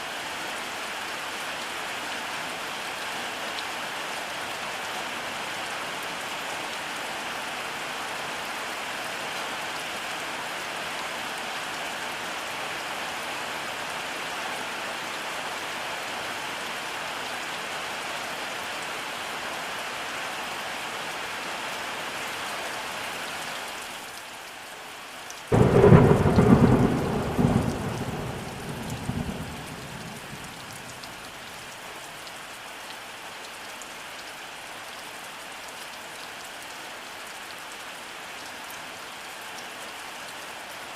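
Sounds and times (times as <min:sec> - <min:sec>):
steady rainfall: 0:00.0 - 0:40.9
thunderclap rumbling: 0:25.5 - 0:30.9.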